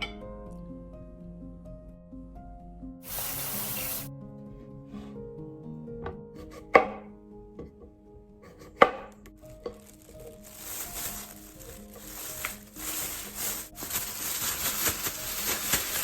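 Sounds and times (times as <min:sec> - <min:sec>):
background music: 0:00.0 - 0:16.0
short hiss: 0:03.0 - 0:04.1
knife chopping on a cutting board: 0:06.4 - 0:07.1, 0:08.4 - 0:09.2.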